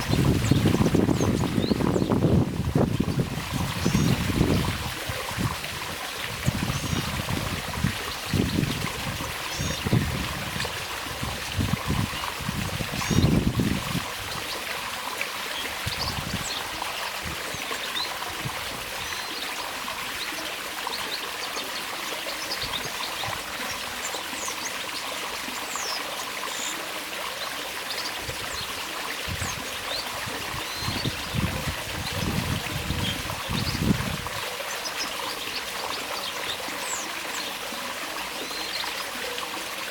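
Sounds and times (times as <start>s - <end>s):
small birds chirping: 0.0s - 4.8s, 6.5s - 10.1s
water trickling: 0.0s - 39.9s.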